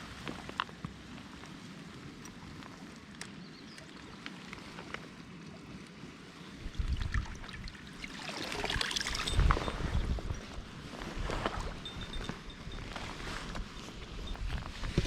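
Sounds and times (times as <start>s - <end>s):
stream running water: 0.0s - 15.0s
crackling rustle: 8.3s - 15.0s.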